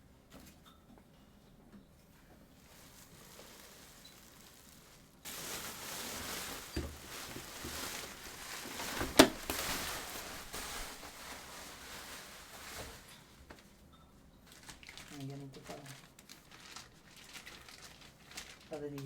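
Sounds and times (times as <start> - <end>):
rustling hiss of handling: 2.5 - 13.7.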